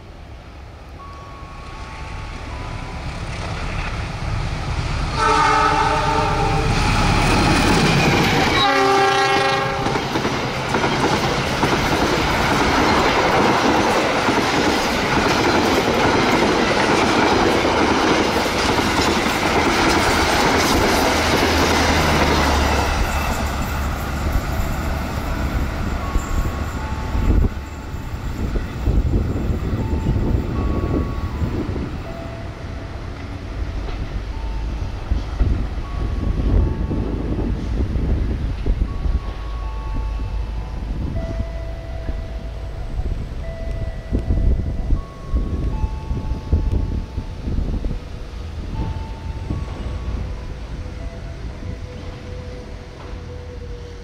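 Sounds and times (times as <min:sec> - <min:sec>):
train approaching: 0:00.0 - 0:54.0
wheels clattering on rails: 0:03.0 - 0:52.2
locomotive horn blasts: 0:05.1 - 0:06.8, 0:08.5 - 0:10.0.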